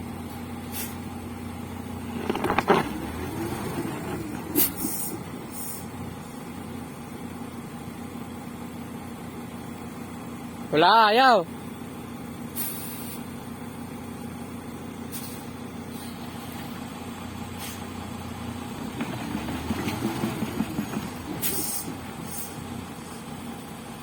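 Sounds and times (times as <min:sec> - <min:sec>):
truck engine revving: 0:01.8 - 0:06.0, 0:15.2 - 0:23.7.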